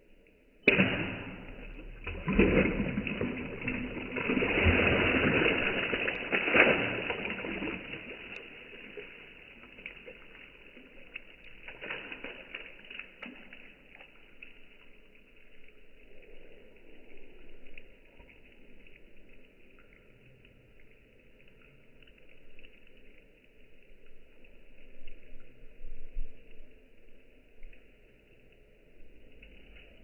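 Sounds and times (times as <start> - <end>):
tile shards splashing into water: 0.7 - 10.3.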